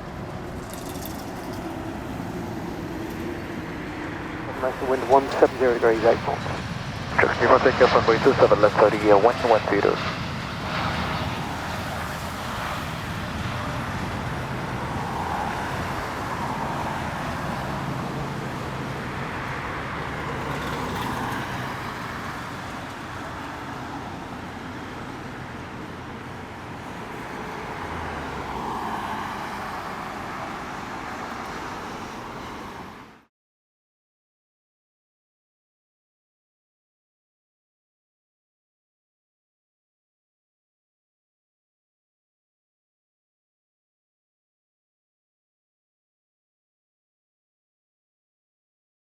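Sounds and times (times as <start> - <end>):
distant engine rumble: 0.8 - 15.3.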